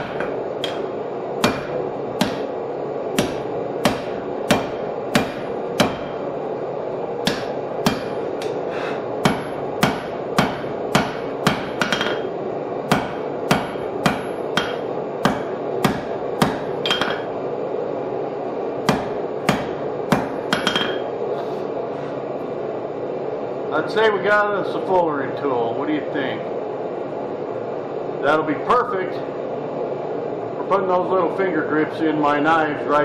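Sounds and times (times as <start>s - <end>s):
hammer striking hot steel: 0.0s - 6.3s, 7.2s - 17.4s, 18.8s - 21.2s
steady background hum: 0.0s - 33.0s.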